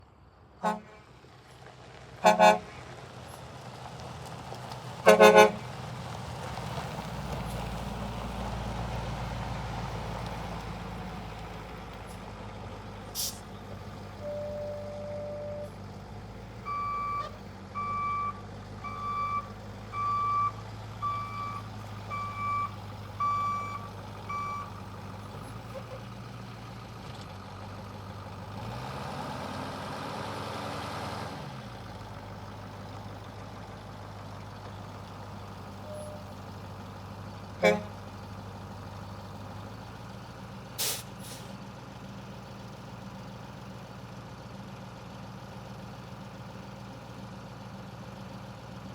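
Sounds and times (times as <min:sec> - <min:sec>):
diesel engine idling: 0:00.0 - 0:48.9
loud horn blast: 0:00.6 - 0:01.1, 0:02.2 - 0:02.8, 0:05.0 - 0:05.7, 0:37.6 - 0:38.0
backup alarm beeping: 0:14.2 - 0:15.7, 0:16.7 - 0:24.7
engine revving: 0:28.0 - 0:32.1.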